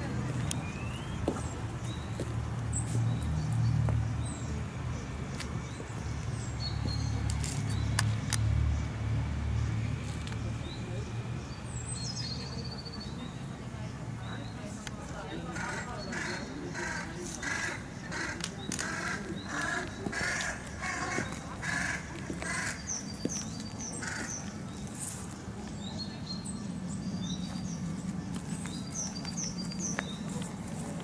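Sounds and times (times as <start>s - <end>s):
bird harsh calls: 15.5s - 24.9s.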